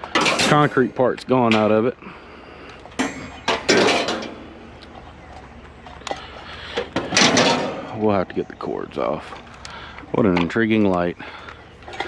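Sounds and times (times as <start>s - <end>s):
junk knocking and clattering: 2.9s - 4.5s, 6.8s - 8.0s.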